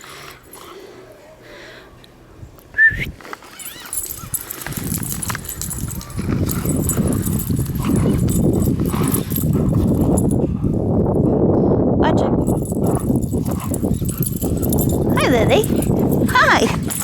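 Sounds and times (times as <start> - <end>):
dogs scuffling in snow: 3.2 - 10.3
dog whining: 3.4 - 10.9, 12.4 - 17.0.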